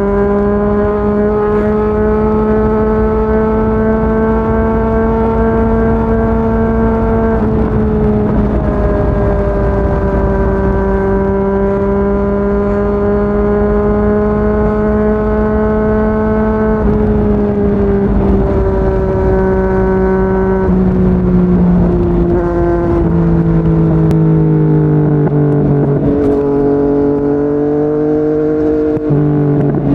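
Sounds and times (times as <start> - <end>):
motorcycle engine cruising: 0.0 - 29.9
wind rumble: 0.0 - 29.9.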